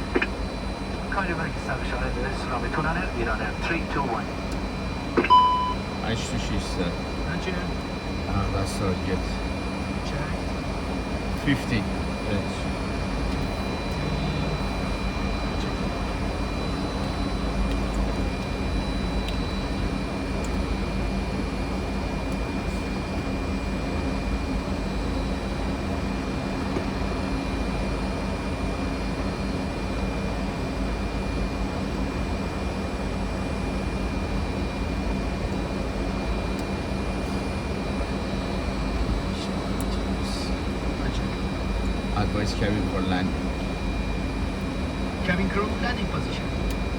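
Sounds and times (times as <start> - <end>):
faint high whines: 0.0 - 26.3
airflow rush and engine hum: 0.0 - 46.9.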